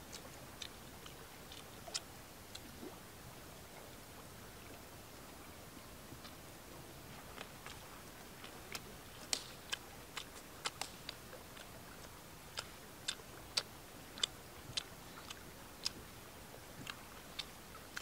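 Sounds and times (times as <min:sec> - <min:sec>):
crunchy chewing: 0:00.0 - 0:02.9, 0:07.1 - 0:16.0, 0:16.6 - 0:18.0.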